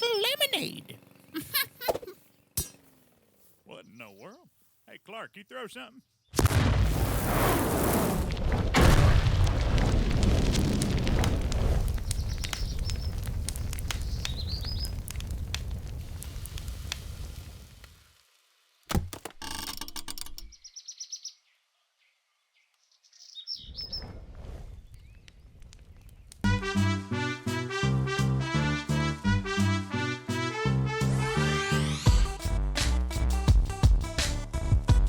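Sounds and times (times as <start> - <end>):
bird chirps: 3.7 - 4.5, 20.5 - 24.1
cartoon explosion booms: 6.4 - 13.6
rumbling with crackles and debris: 6.4 - 18.6, 23.7 - 26.5.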